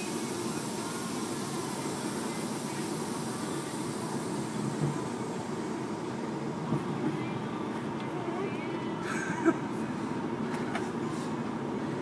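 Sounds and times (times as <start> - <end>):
heavy truck engine running: 0.0 - 12.0.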